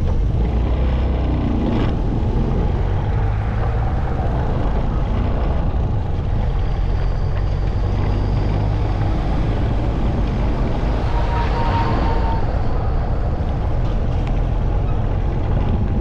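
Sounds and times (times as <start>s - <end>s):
motorcycle engine drone: 0.0s - 16.0s
road and wind noise: 0.0s - 16.0s.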